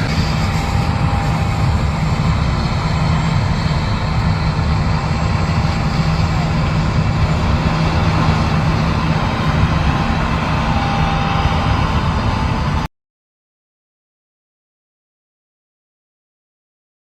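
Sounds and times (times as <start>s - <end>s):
low engine drone: 0.0s - 12.9s
thin steady whine: 0.0s - 12.9s.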